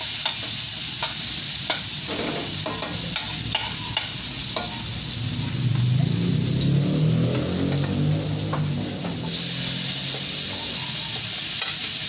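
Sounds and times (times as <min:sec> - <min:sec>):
food sizzling in hot oil: 0:00.0 - 0:12.0
metal ladle scraping a wok: 0:01.0 - 0:05.7.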